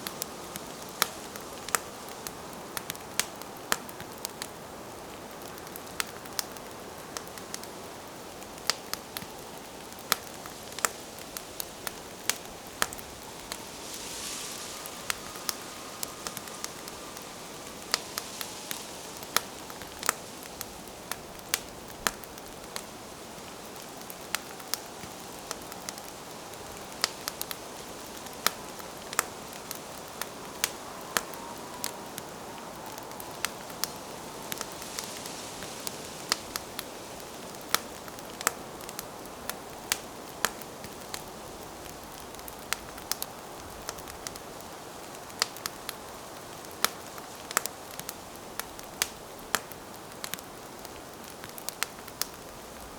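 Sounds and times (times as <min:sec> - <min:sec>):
pops and snaps of fire: 0:00.0 - 0:04.5, 0:05.4 - 0:41.3, 0:45.1 - 0:52.5
campfire crackling: 0:00.0 - 0:52.9
steady fire hiss: 0:00.0 - 0:52.9.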